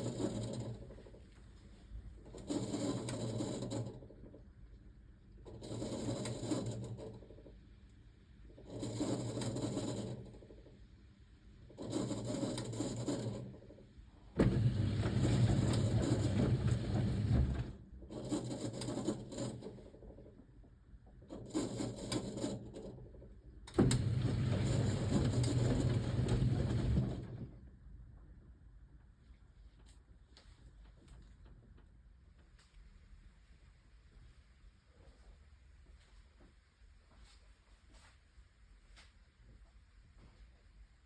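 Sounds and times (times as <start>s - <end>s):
washing machine drum tumbling: 14.4s - 17.8s, 23.8s - 27.5s.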